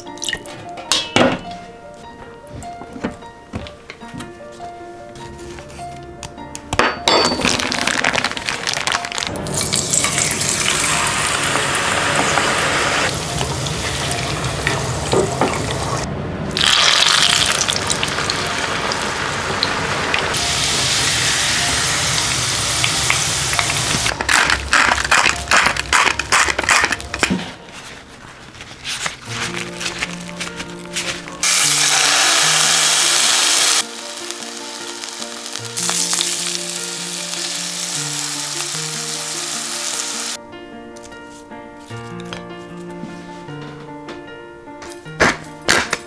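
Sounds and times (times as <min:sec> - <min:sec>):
oil crackling: 0:07.5 - 0:40.4
water running: 0:07.9 - 0:24.1
potatoes deep-frying in oil: 0:16.6 - 0:25.7, 0:31.4 - 0:40.4.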